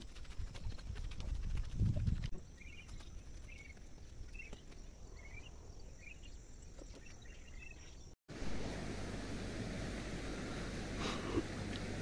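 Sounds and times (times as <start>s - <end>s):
bird chirping: 2.3s - 8.2s.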